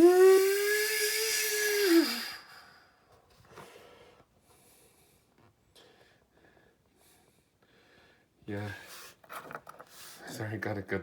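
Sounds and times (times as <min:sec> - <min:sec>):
person imitating jet engine: 0:00.0 - 0:02.4.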